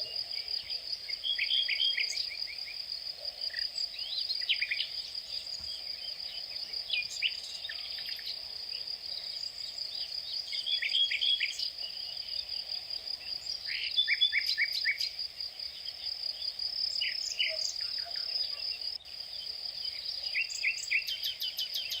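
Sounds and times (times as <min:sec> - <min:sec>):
insect trill: 0:00.0 - 0:22.0.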